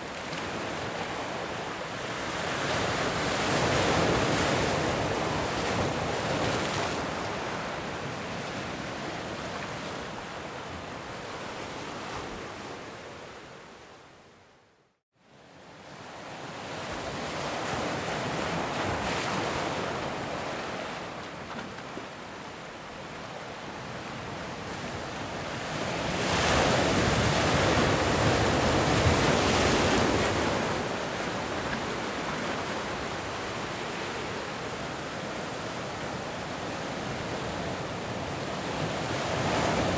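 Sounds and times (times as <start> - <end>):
ocean waves breaking: 25.9 - 39.9.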